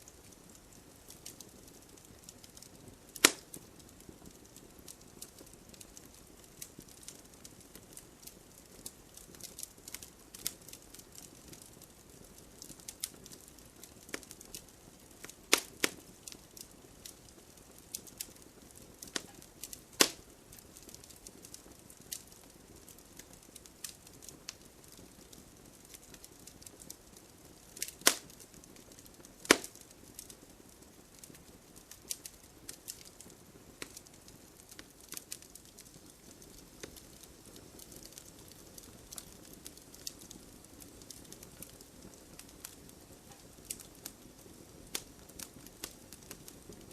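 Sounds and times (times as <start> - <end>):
logs crackling and popping: 0.0 - 46.9
loud wood snaps: 3.2 - 3.5, 15.5 - 16.0, 20.0 - 20.2, 27.8 - 28.3, 29.4 - 29.8.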